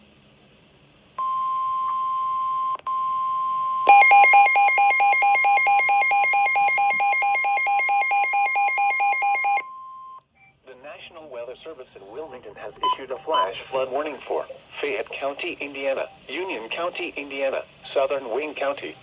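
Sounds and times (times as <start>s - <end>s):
rapid pulsing beep: 3.9s - 9.6s
steady warning alarm tone: 3.9s - 9.6s.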